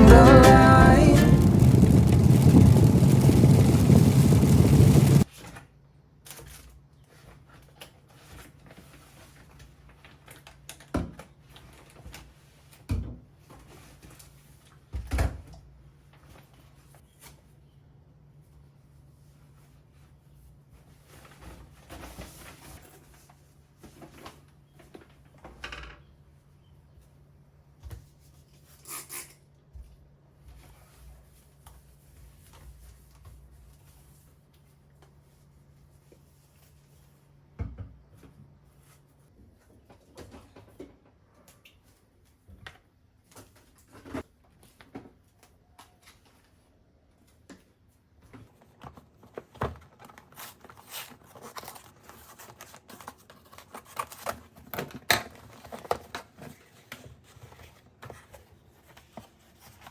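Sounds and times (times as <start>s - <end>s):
steady low hum: 0.0s - 5.2s.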